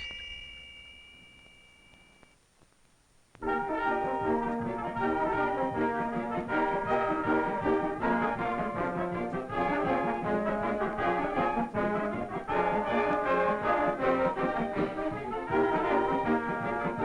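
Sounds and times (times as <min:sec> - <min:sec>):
brass band playing quick notes: 0:03.4 - 0:17.0.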